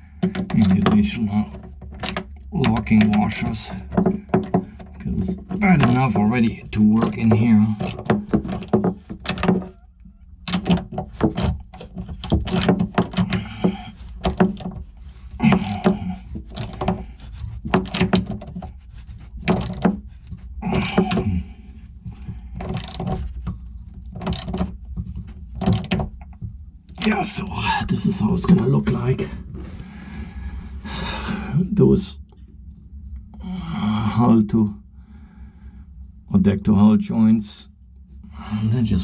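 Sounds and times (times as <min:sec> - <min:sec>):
steady low hum: 0:00.0 - 0:39.0
metallic clicks of washers and nuts: 0:03.9 - 0:18.7, 0:19.4 - 0:21.3, 0:22.1 - 0:24.8, 0:25.5 - 0:27.0.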